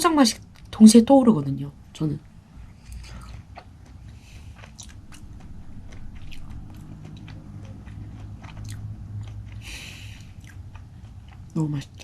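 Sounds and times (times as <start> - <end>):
low room hum: 0.0 - 12.0
wet chewing mouth sounds: 2.6 - 12.0.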